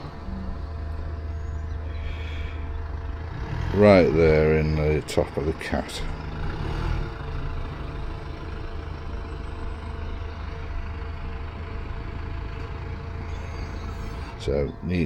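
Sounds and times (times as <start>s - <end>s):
low mechanical hum: 0.0s - 5.5s.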